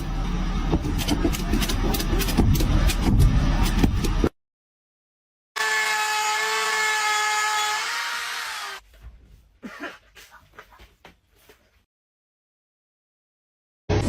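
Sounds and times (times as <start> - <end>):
power tool motor whining: 5.6 - 8.8.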